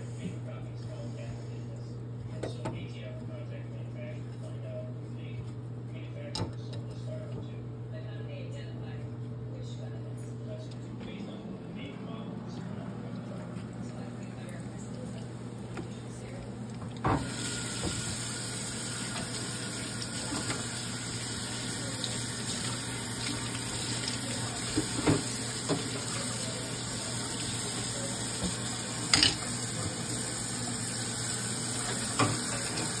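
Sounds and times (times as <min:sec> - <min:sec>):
chicken sizzling in hot oil: 0:17.1 - 0:33.0.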